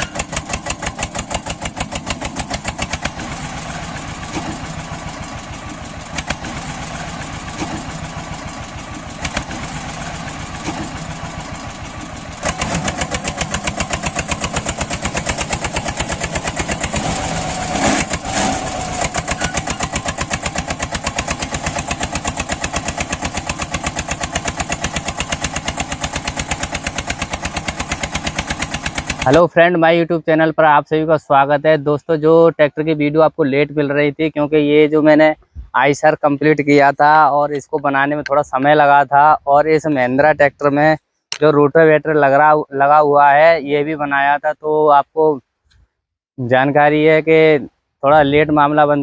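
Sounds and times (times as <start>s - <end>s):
small tractor engine running: 0.0s - 29.5s.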